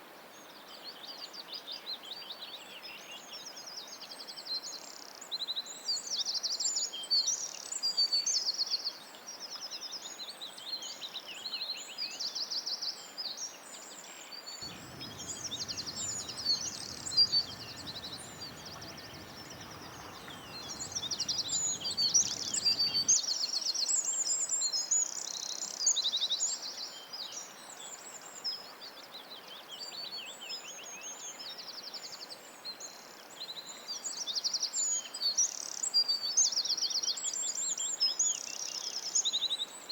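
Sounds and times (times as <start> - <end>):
birds singing and chirping: 14.6 - 23.1
background hiss: 14.6 - 23.2.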